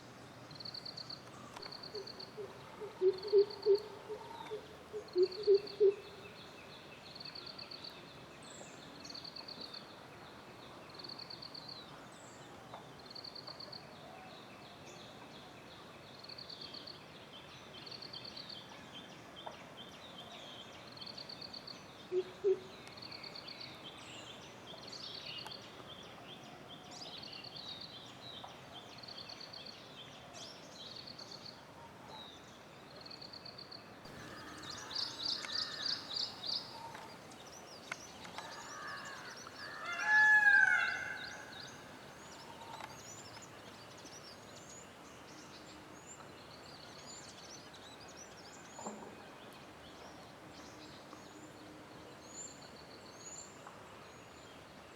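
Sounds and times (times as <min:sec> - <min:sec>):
loud low pulsed bird calls: 0:34.1 - 0:37.1.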